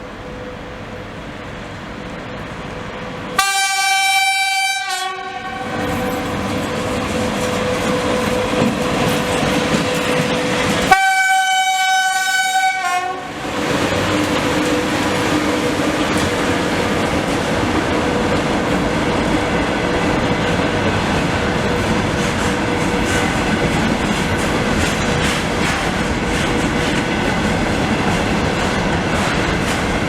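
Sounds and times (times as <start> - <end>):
freight train running: 0.0 - 30.0
locomotive horn blasts: 3.4 - 6.2, 10.9 - 13.4.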